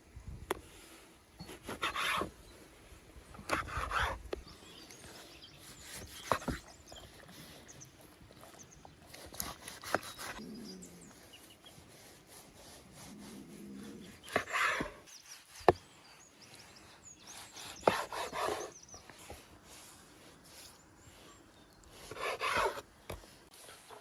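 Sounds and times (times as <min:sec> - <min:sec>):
scraping on wooden surface: 0:22.1 - 0:23.2.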